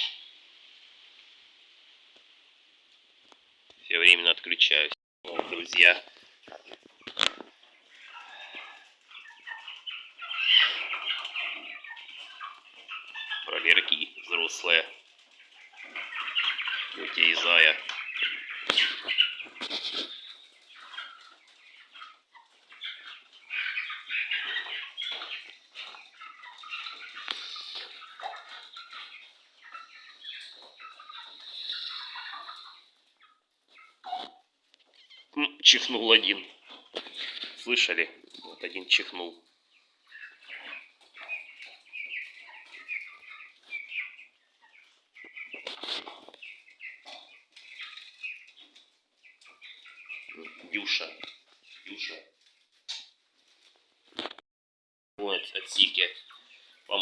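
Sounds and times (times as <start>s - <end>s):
quail chirping: 0.0s - 0.4s, 3.9s - 54.3s, 55.2s - 57.0s
rustling noise: 5.3s - 11.4s, 12.1s - 22.7s, 44.8s - 49.6s
scratchy rustling: 18.6s - 21.4s.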